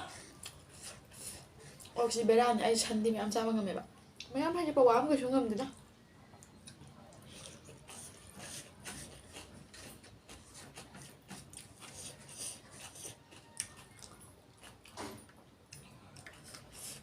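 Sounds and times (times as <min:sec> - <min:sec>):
person chewing: 0:00.0 - 0:02.0, 0:06.4 - 0:17.0.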